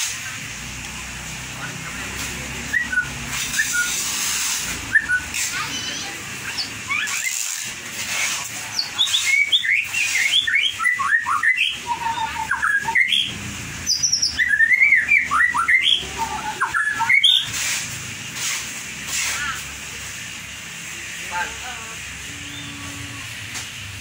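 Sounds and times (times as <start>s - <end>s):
bird singing whistled notes: 2.7s - 4.0s, 4.9s - 5.4s, 8.8s - 17.5s.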